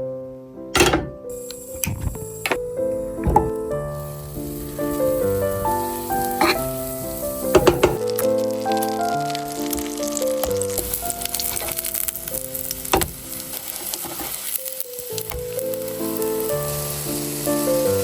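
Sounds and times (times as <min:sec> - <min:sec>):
background music: 0:00.6 - 0:18.0
sharp knock: 0:00.8 - 0:01.2
potato cakes sizzling in a pan: 0:03.9 - 0:18.0.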